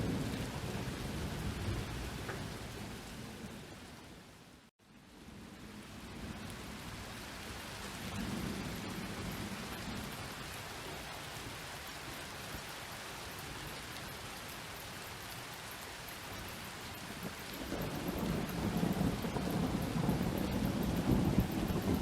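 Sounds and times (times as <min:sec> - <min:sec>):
thunder rumbling: 0:00.0 - 0:03.6, 0:17.1 - 0:22.0
heavy rain pattering: 0:00.0 - 0:04.1, 0:05.1 - 0:22.0.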